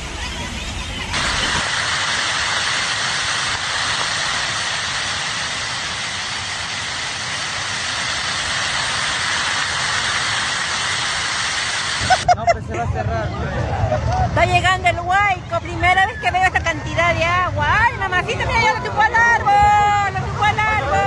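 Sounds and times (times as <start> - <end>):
flash flood rushing down river: 1.1 - 12.3.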